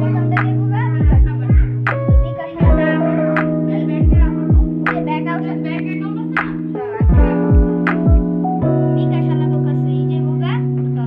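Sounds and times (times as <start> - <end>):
deep kick drums: 0.0 - 5.1, 6.4 - 8.4
held bass notes: 0.0 - 11.0.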